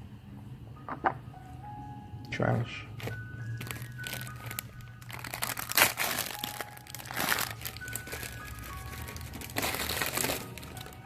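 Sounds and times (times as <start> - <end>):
quiet background music: 0.0 - 11.0
plastic wrapping crinkling: 3.0 - 11.0.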